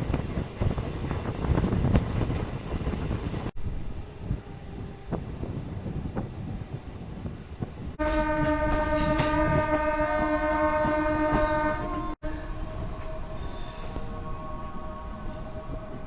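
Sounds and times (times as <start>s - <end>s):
moving train rumble: 0.0s - 16.0s
train horn blast: 8.0s - 15.7s.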